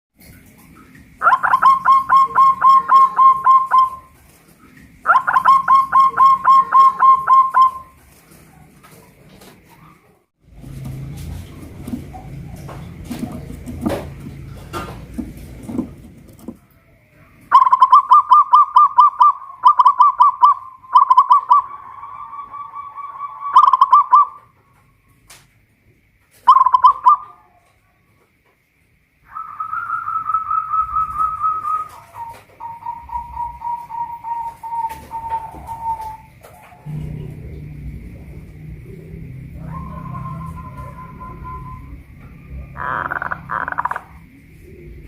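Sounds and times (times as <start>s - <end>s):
dove cooing: 1.2s - 10.2s, 17.2s - 24.5s, 29.3s - 45.0s
low rumble: 36.8s - 45.0s.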